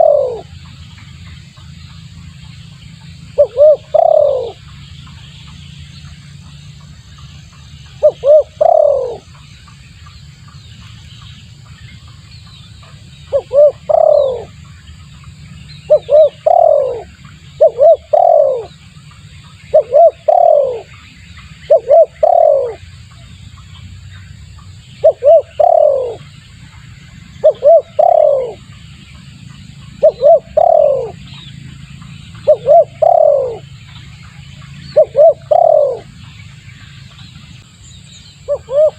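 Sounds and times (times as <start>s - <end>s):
dove cooing: 0.0s - 0.5s, 3.4s - 4.6s, 8.0s - 9.3s, 13.3s - 14.6s, 15.9s - 18.8s, 19.7s - 21.0s, 21.6s - 22.9s, 25.0s - 26.3s, 27.4s - 28.7s, 29.9s - 31.4s, 32.4s - 33.7s, 34.9s - 36.2s, 38.4s - 38.9s
low steady hum: 0.0s - 38.9s.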